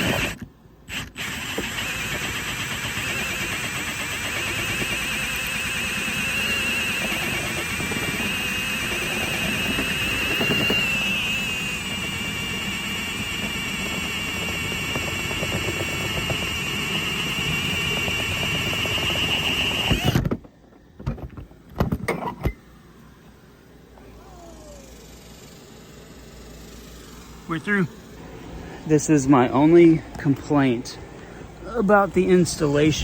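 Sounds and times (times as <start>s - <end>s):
power drill whining: 0.0s - 20.3s, 24.2s - 28.2s.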